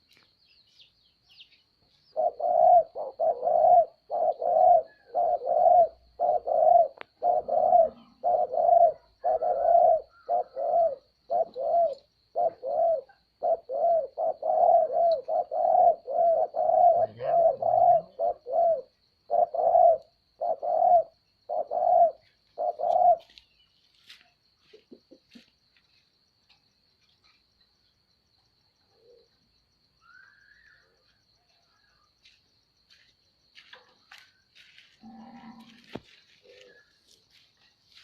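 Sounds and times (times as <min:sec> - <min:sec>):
dove cooing: 0:02.1 - 0:23.4, 0:35.0 - 0:36.9.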